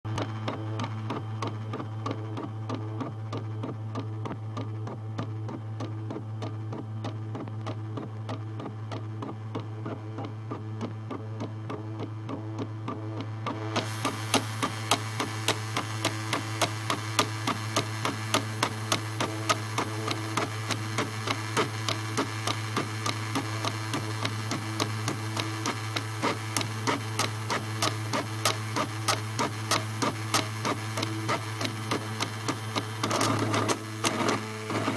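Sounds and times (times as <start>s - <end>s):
engraving machine humming and ticking: 0.1s - 34.9s
harsh hiss with sharp clicks: 13.8s - 34.9s.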